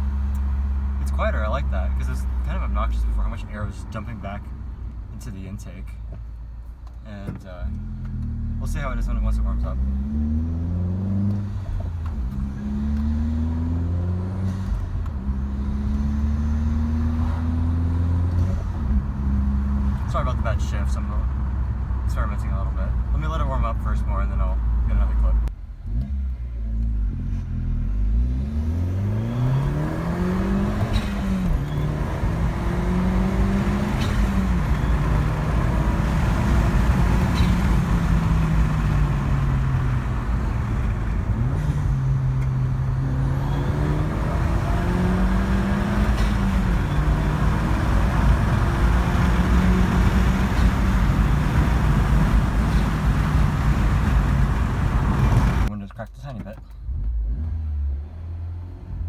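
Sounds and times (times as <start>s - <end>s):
road noise: 0.0s - 59.0s
car engine revving through gears: 7.2s - 55.7s, 56.3s - 59.0s.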